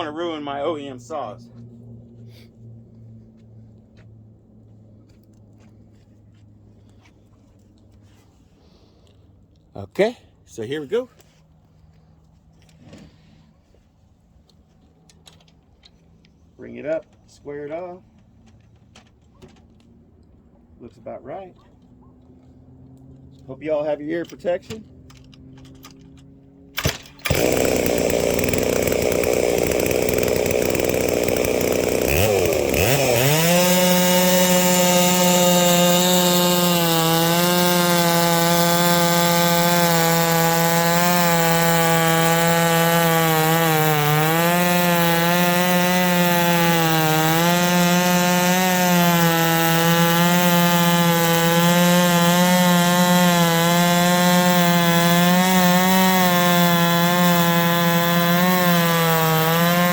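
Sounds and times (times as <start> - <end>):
chainsaw cutting through log: 0.0 - 1.3, 26.8 - 59.9.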